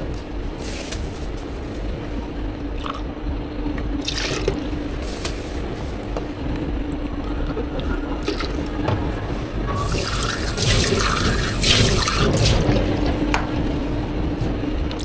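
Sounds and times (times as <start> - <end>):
low machine hum: 0.0 - 15.0
liquid pouring into container: 9.7 - 12.9.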